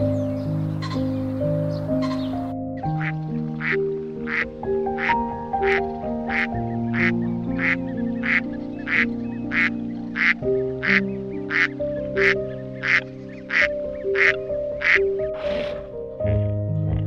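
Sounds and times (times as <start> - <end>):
gentle music with held notes: 0.0 - 17.0
duck quacking: 2.0 - 2.3, 3.0 - 4.4, 5.0 - 15.6.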